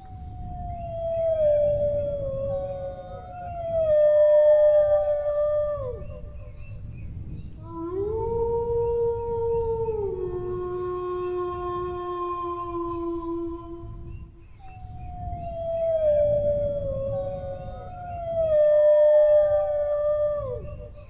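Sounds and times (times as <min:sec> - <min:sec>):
dogs howling: 0:00.4 - 0:06.8, 0:07.6 - 0:21.0.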